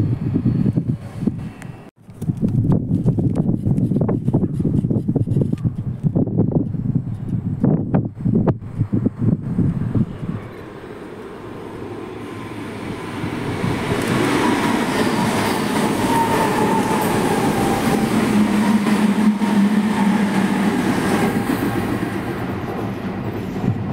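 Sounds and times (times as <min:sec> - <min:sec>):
train wheels rumbling on rails: 0:08.5 - 0:23.9.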